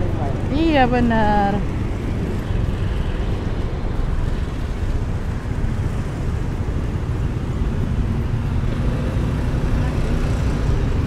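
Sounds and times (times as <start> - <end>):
street traffic: 0.0 - 11.0
wind rumble on microphone: 0.0 - 11.0.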